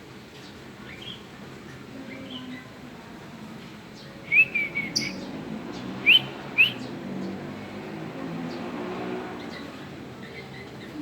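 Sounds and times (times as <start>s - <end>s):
lovebird chirping: 4.2s - 5.3s, 6.0s - 6.8s.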